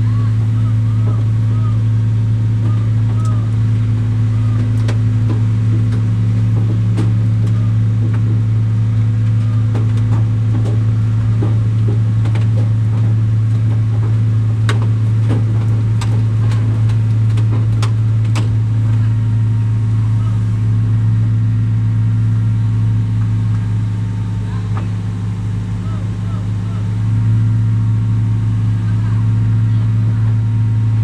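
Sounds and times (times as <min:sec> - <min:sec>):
large diesel engine humming: 0:00.0 - 0:31.0
sharp clicks and knocks: 0:02.5 - 0:19.5.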